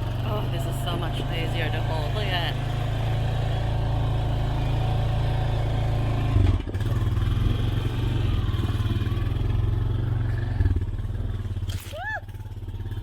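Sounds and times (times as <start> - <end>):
off-road vehicle engine running: 0.0 - 13.0
vehicle jolt: 0.0 - 13.0.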